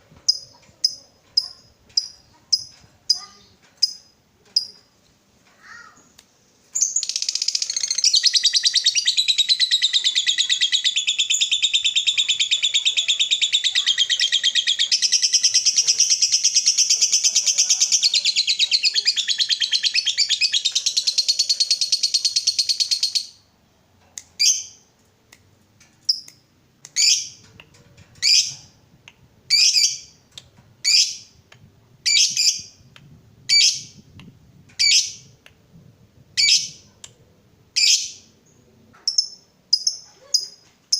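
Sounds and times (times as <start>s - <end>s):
lovebird chattering trill: 6.8s - 23.4s, 32.0s - 32.8s, 34.8s - 35.3s, 36.4s - 36.9s.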